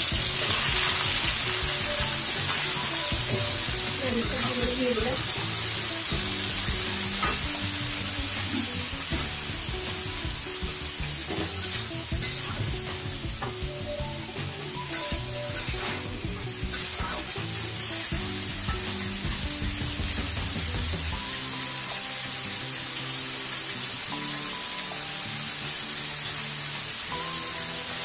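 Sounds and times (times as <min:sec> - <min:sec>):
soft background music: 0:00.0 - 0:28.0
vegetables sizzling in hot oil: 0:00.0 - 0:28.0
spatula scraping and clinking: 0:11.3 - 0:12.7, 0:14.8 - 0:17.3.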